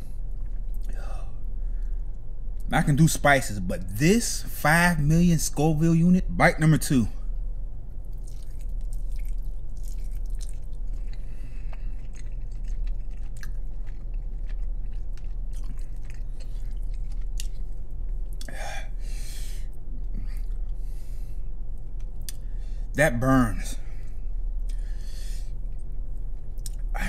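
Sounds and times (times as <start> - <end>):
man chewing with wet smacks: 0.0 - 1.0, 8.0 - 19.0, 19.6 - 22.5, 24.5 - 27.0
steady low hum: 0.0 - 27.0
breath out: 18.5 - 21.3.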